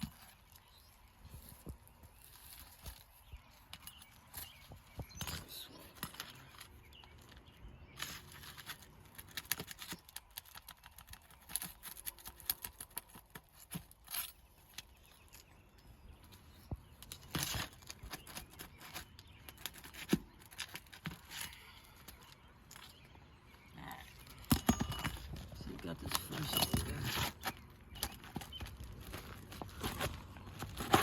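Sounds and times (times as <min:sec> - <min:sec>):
tool scraping shingles: 0:24.3 - 0:31.0
hand tools clicking and tapping: 0:24.4 - 0:31.0.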